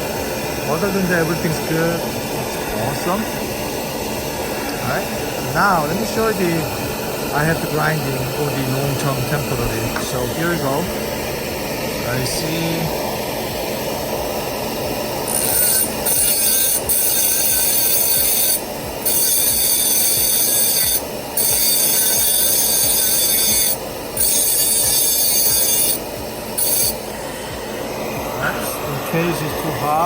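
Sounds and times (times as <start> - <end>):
steady background hum: 0.0 - 30.0
rotary grinder grinding metal: 15.2 - 27.4.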